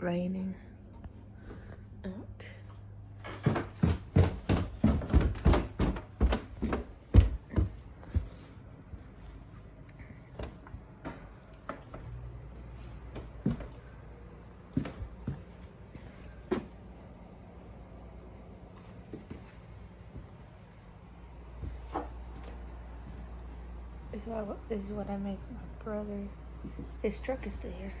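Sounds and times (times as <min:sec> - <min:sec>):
knocks and thumps: 0:03.4 - 0:08.3.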